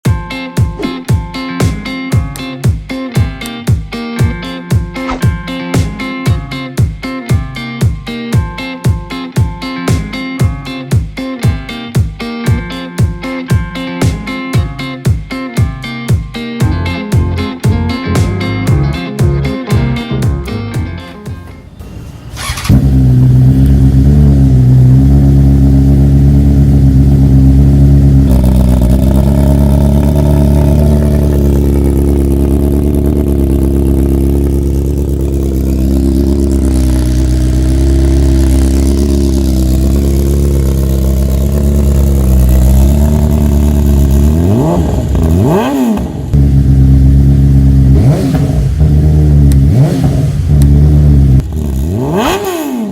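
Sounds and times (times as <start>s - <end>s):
motorcycle engine revving: 21.8s - 52.9s
motorcycle engine idling loudly: 22.4s - 51.9s.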